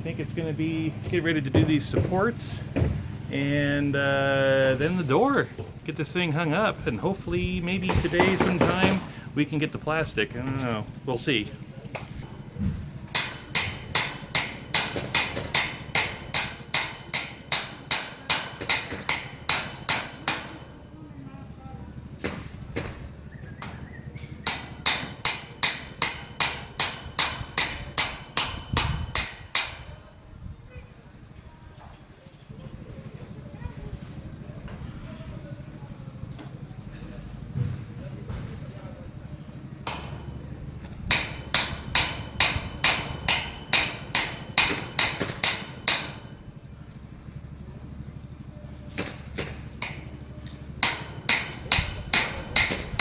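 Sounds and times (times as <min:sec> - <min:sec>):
hammer striking metal spike: 0:13.0 - 0:20.8, 0:24.2 - 0:30.1, 0:39.8 - 0:46.4, 0:49.0 - 0:53.0.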